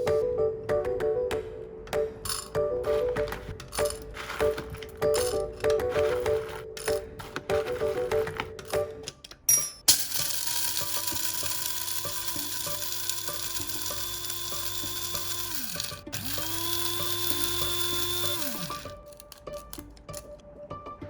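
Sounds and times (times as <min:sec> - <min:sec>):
espresso machine motor whine: 0:10.2 - 0:19.0.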